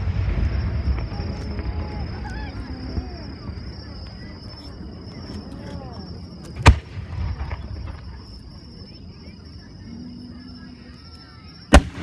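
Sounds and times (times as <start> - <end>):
crickets chirping: 0.0 - 12.0
firework shells bursting: 11.7 - 12.0.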